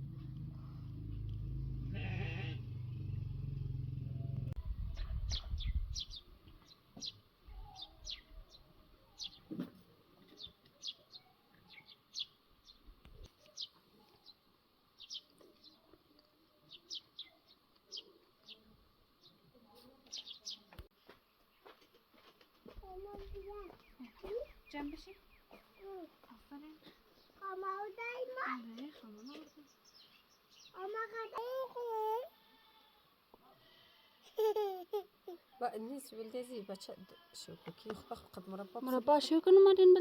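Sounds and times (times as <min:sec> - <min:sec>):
small birds chirping: 0:04.7 - 0:09.5, 0:10.3 - 0:21.8, 0:22.8 - 0:31.6.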